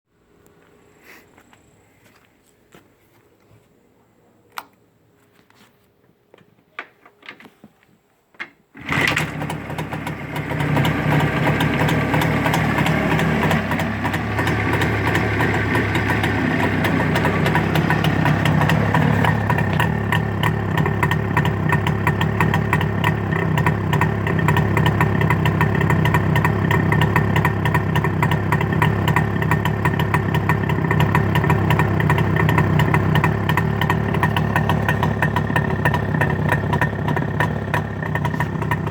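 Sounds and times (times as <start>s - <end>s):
two-stroke engine idling: 8.8s - 38.9s.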